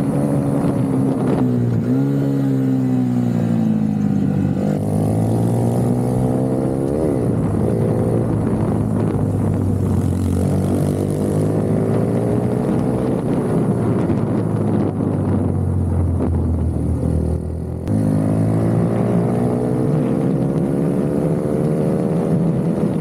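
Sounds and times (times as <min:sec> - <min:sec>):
minibike engine revving: 0:17.7 - 0:23.0.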